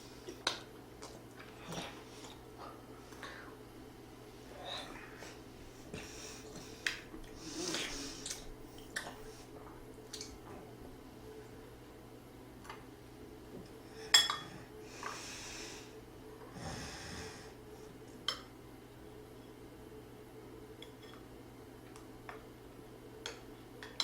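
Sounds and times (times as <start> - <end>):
slurping breaths: 4.5 - 9.6
tableware clink: 14.1 - 14.5.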